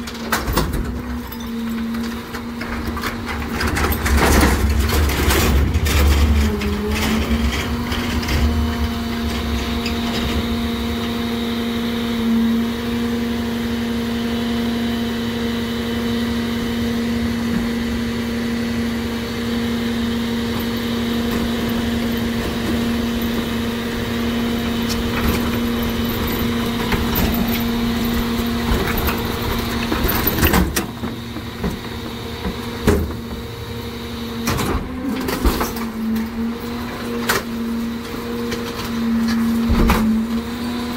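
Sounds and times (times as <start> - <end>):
clunks: 0.0 - 10.5, 20.5 - 33.6
garbage truck humming: 0.0 - 40.9.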